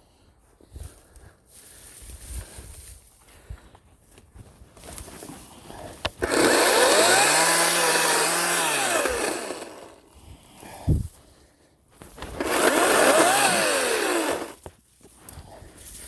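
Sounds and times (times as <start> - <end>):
electric chainsaw motor spinning: 6.1 - 10.0, 12.2 - 14.6.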